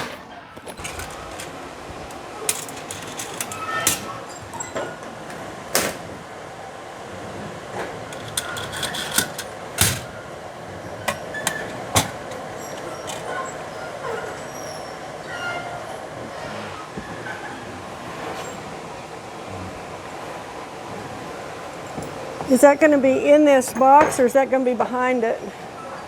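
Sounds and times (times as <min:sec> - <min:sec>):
nuts and bolts rattling: 0:00.6 - 0:06.1, 0:07.8 - 0:10.2, 0:11.0 - 0:14.0.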